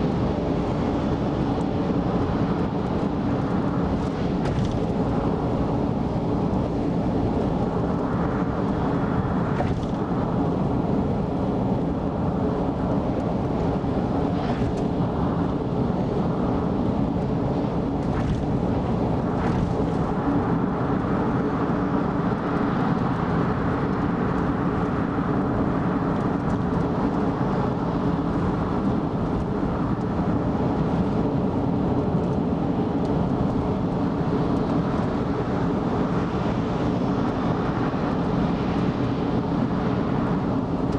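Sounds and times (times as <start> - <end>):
tyre and engine rumble: 2.2 - 21.2.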